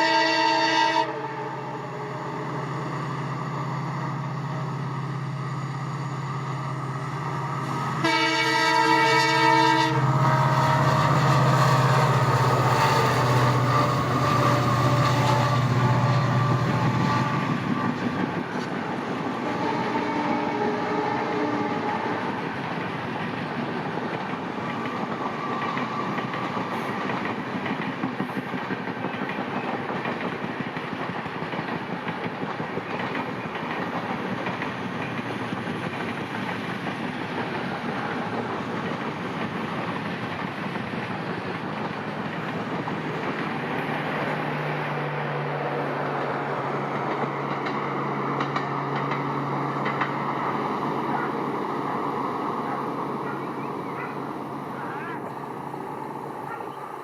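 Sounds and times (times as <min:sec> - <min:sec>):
train coaches rumbling past: 0:00.0 - 0:57.0
wheels clacking over rail joints: 0:22.3 - 0:45.1, 0:46.0 - 0:56.8.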